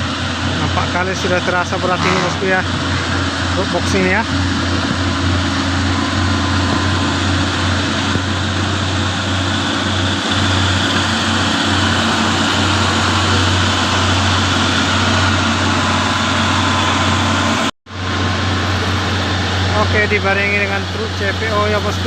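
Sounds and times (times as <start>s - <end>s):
diesel truck engine labouring: 0.0s - 22.0s.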